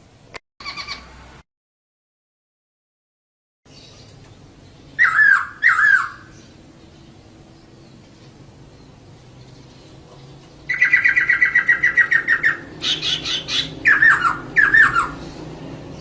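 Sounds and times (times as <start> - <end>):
laughingthrush chattering calls: 0.6 - 1.1, 5.0 - 6.5, 9.5 - 15.4
bird falling slurred calls: 5.0 - 6.3.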